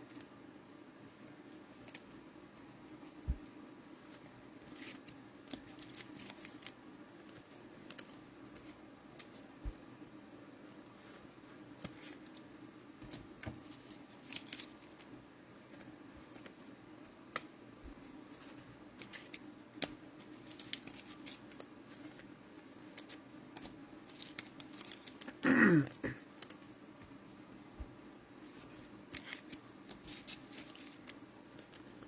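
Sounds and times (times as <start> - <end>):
cards clicking and rustling: 1.8 - 2.7, 4.0 - 9.6, 10.9 - 16.7, 17.3 - 17.5, 18.1 - 25.4, 26.2 - 27.2, 28.4 - 32.0.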